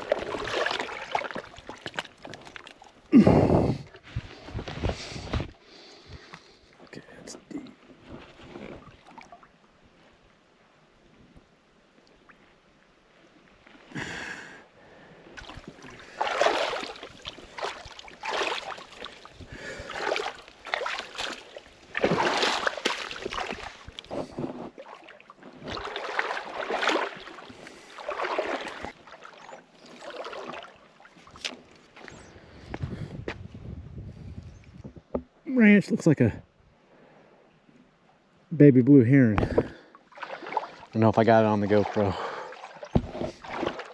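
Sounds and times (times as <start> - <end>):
wading splashes in creek water: 0.0 - 3.2, 8.1 - 9.6, 15.4 - 32.2, 39.6 - 43.9.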